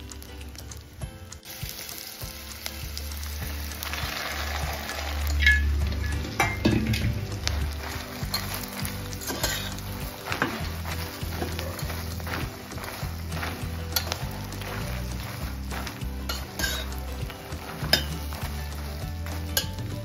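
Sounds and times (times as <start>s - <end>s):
nuts sizzling in hot oil: 0.0s - 20.0s
metal spatula scraping a pan: 4.5s - 20.0s.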